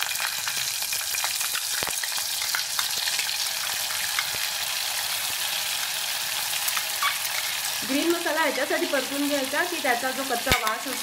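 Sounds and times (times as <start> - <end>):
paste sizzling in hot ghee: 0.0 - 11.0.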